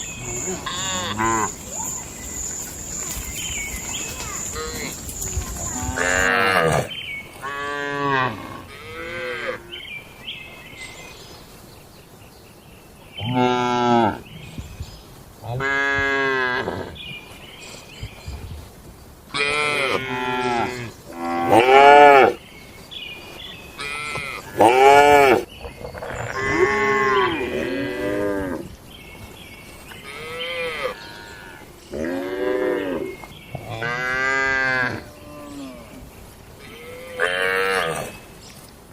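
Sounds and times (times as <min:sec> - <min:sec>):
cattle mooing: 0:00.2 - 0:02.9.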